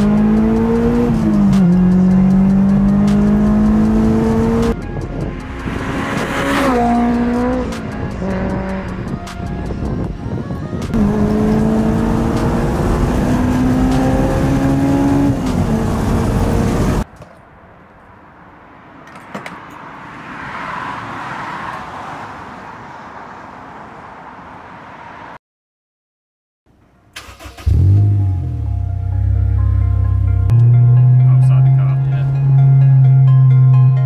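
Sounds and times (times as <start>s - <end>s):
sports car engine accelerating: 0.0s - 4.8s, 5.5s - 9.1s, 10.9s - 17.0s, 27.6s - 34.0s.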